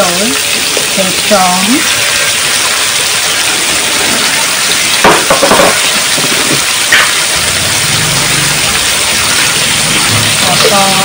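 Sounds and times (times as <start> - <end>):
food sizzling in a pan: 0.0 - 11.0
utensils clattering: 3.4 - 7.2.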